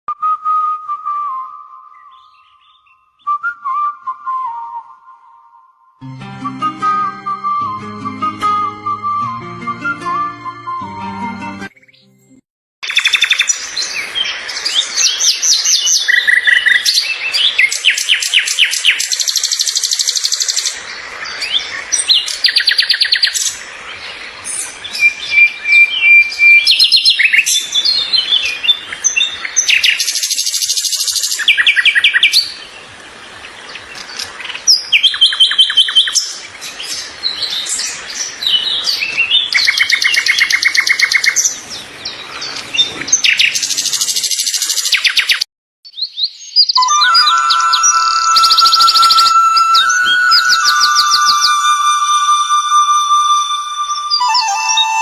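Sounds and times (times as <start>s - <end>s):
songbirds chirping and singing: 1.9s - 3.4s, 12.8s - 55.0s.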